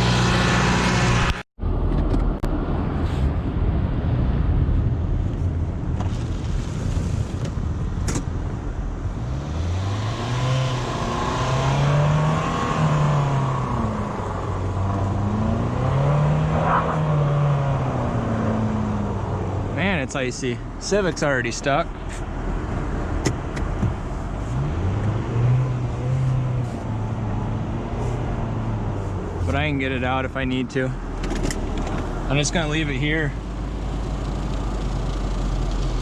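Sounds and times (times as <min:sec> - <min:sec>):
car engine revving: 0:00.0 - 0:01.4, 0:09.1 - 0:20.0, 0:20.8 - 0:30.3.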